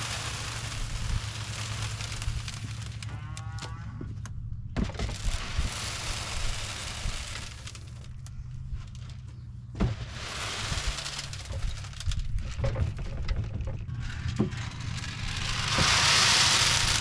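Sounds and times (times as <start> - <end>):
wind-like hiss: 0.0 - 3.0, 5.1 - 8.0, 9.9 - 12.3, 15.0 - 17.0
low engine hum: 0.0 - 17.0.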